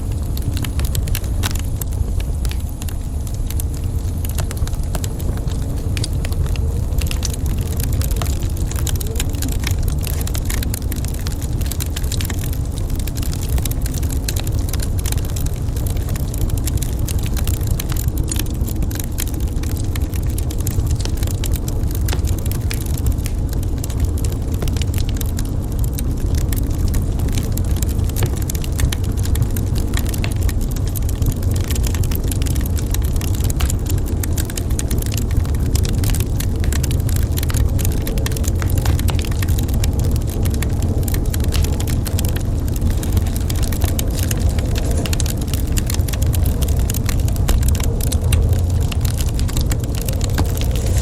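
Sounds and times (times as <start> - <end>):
low rumble: 0.0 - 51.0
wood fire crackling and popping: 0.0 - 51.0.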